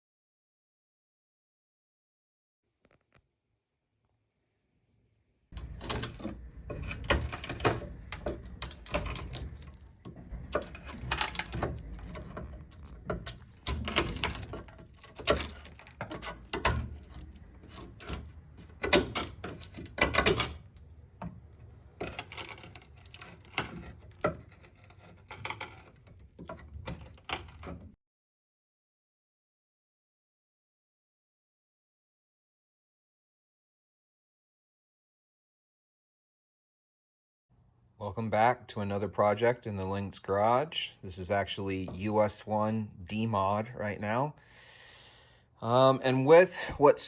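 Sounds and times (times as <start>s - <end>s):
chisel knocking and scraping wood: 5.6s - 28.0s.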